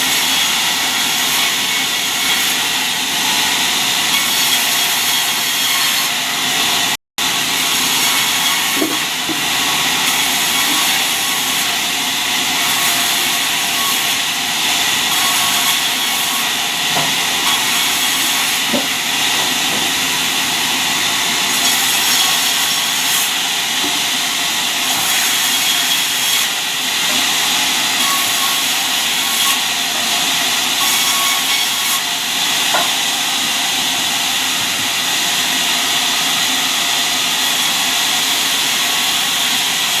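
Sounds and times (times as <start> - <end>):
sawmill saw cutting wood: 0.0 - 40.0.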